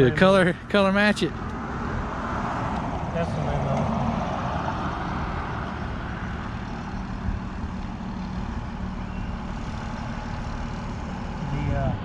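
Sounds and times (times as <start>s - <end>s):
machinery rumbling: 4.8s - 12.0s.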